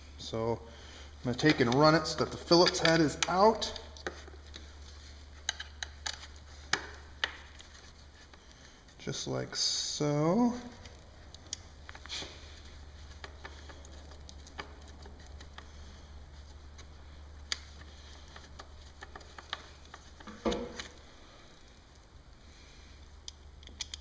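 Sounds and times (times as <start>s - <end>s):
small screws clicking: 23.2s - 24.0s.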